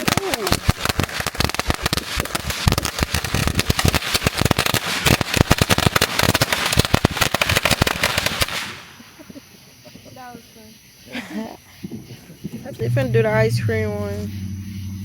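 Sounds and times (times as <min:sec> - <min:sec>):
firework crackling pops: 0:00.0 - 0:10.2, 0:11.8 - 0:12.8.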